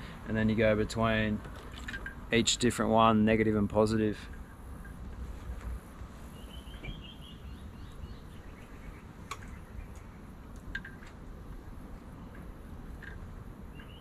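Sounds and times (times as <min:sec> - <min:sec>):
small bird chirps: 0:06.3 - 0:10.3, 0:13.7 - 0:14.0.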